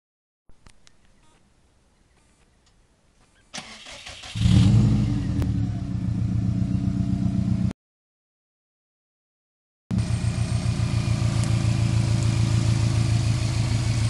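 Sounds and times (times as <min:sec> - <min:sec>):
car starter cranking: 0:03.6 - 0:04.6
car engine running: 0:09.9 - 0:14.0.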